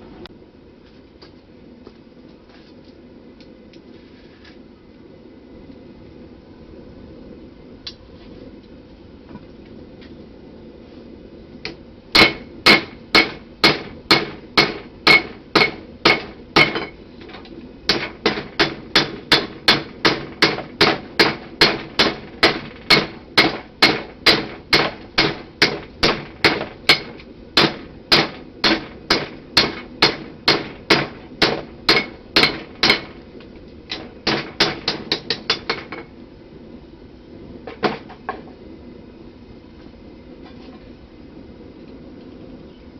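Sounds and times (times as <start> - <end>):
steady low hum: 0.0 - 42.9
hammer striking steel on anvil: 12.2 - 17.0, 17.9 - 33.2, 33.9 - 36.0.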